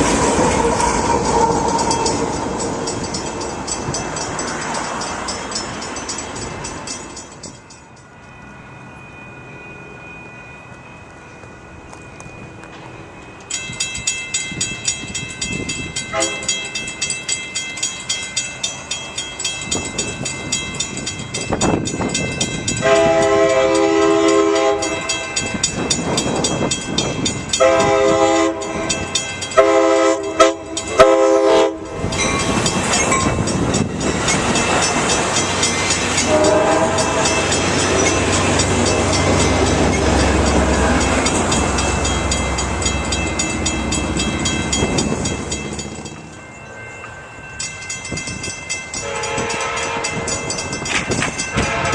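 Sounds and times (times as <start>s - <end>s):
wheels clicking over rail joints: 0.0s - 8.3s, 11.4s - 51.9s
train engine drone: 0.0s - 51.9s
locomotive air horn: 16.1s - 16.5s, 22.8s - 25.1s, 27.6s - 28.9s, 29.6s - 32.0s, 36.2s - 37.4s, 49.0s - 50.4s, 51.5s - 51.9s.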